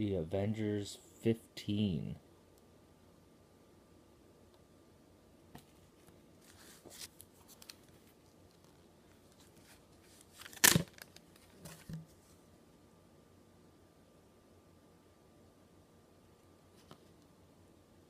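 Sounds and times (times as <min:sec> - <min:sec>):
comic books rustling and crinkling: 0:05.6 - 0:12.5.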